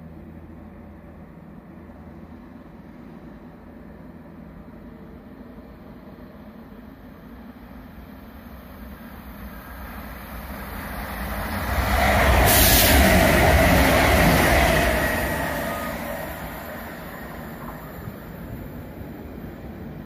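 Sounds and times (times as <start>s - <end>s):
diesel train passing: 0.0s - 20.0s.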